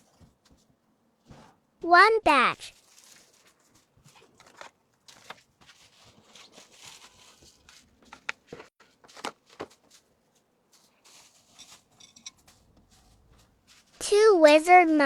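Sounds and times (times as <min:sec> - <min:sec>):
plastic wrapping crinkling: 0:02.7 - 0:08.0.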